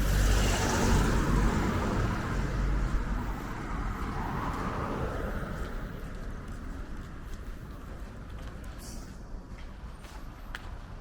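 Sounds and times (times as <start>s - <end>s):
vehicle passing: 0.0s - 6.2s.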